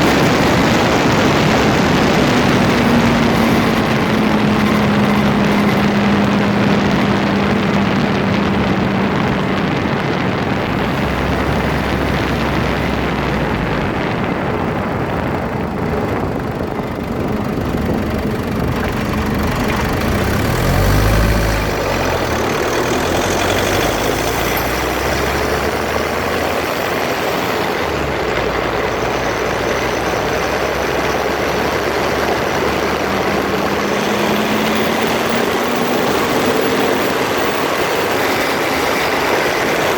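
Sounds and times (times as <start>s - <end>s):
deep rumble: 0.0s - 39.9s
drivetrain grinding rush: 0.0s - 39.9s.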